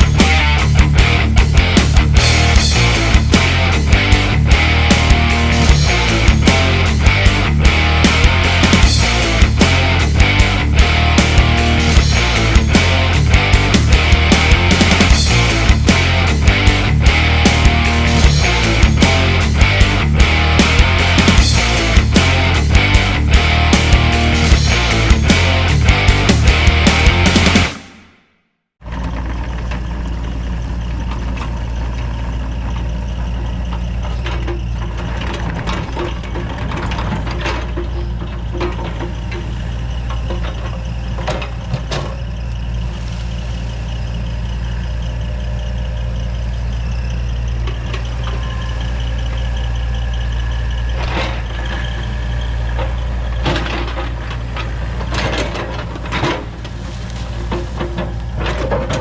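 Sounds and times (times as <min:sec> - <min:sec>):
excavator diesel engine running: 0:00.0 - 0:28.2, 0:28.8 - 0:59.0
music: 0:00.0 - 0:28.3
metallic clanks and scrapes of digging: 0:52.8 - 0:59.0.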